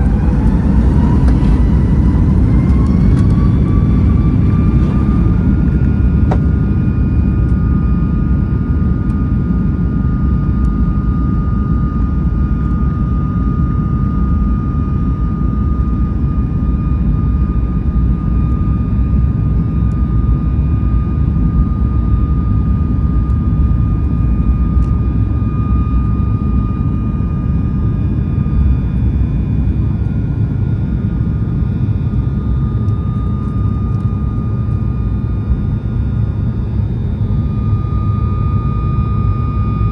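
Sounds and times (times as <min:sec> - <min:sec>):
high fan whine: 0:00.0 - 0:08.5
jet engines rumbling in cabin: 0:00.0 - 0:39.9.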